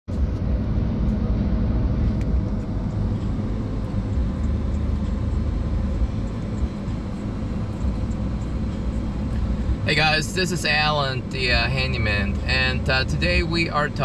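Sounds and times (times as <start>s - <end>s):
engine idling: 0.1s - 14.0s.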